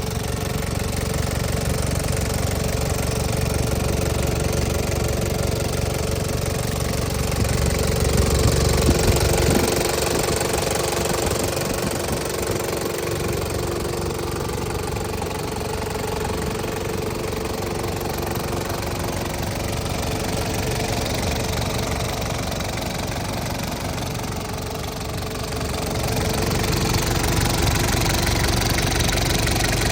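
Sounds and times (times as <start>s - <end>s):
engine idling: 0.0s - 29.9s.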